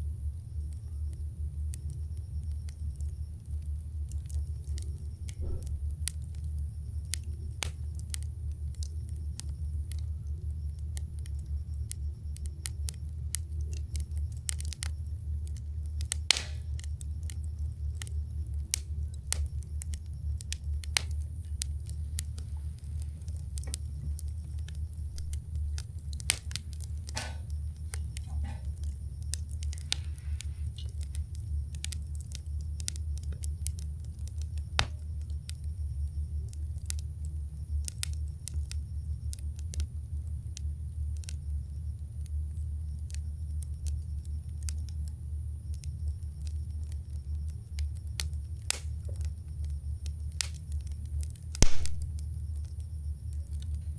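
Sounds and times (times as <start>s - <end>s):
low rumble: 0.0s - 35.3s, 51.6s - 52.5s
campfire crackling and popping: 0.1s - 53.9s.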